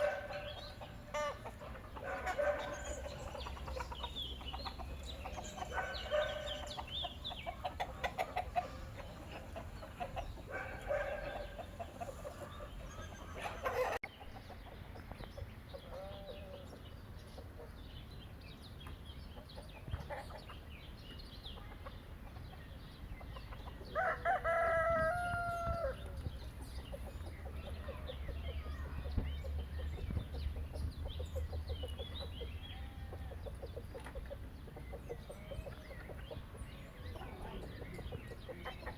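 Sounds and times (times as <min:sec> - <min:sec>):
chickens clucking: 0:00.0 - 0:18.0, 0:18.8 - 0:38.9
rooster crowing: 0:24.0 - 0:26.0.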